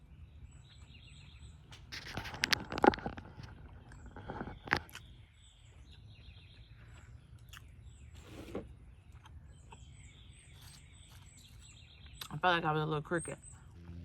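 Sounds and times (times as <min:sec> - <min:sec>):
faint outdoor background noise: 0:00.0 - 0:14.0
small birds chirping: 0:00.0 - 0:14.0
rustling crunch: 0:01.7 - 0:05.9.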